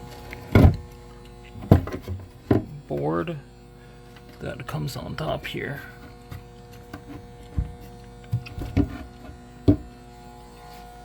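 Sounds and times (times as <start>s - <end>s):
steady electrical hum: 0.0s - 11.0s
board knocking into place: 0.5s - 0.8s, 1.6s - 2.7s, 9.7s - 9.9s.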